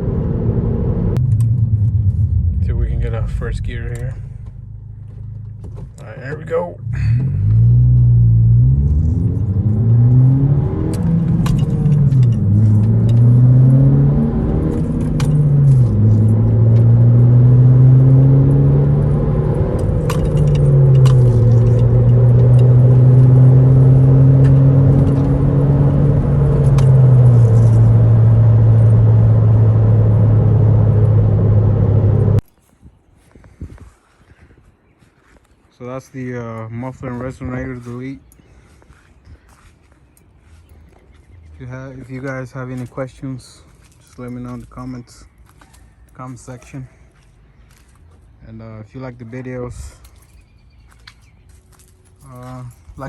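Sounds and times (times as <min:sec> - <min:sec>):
car engine accelerating: 0:00.0 - 0:32.5.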